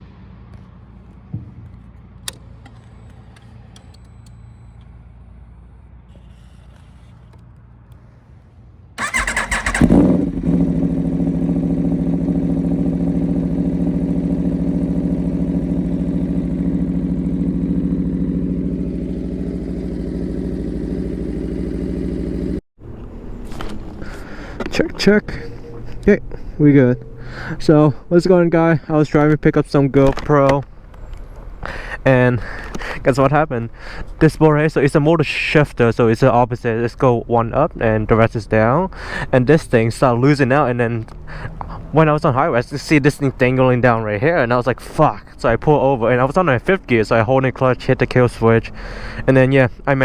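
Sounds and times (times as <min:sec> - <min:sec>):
motorcycle engine starting and idling: 0:09.0 - 0:27.6.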